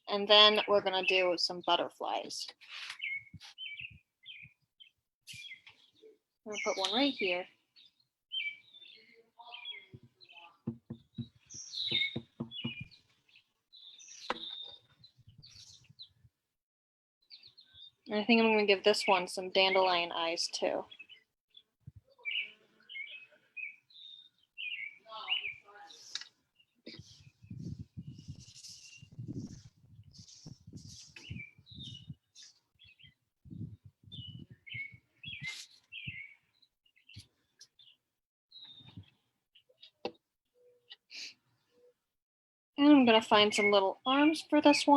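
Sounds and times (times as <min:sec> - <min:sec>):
small birds chirping: 0:00.4 - 0:16.3, 0:17.2 - 0:18.2, 0:18.8 - 0:42.0
soft low thuds: 0:10.7 - 0:13.0.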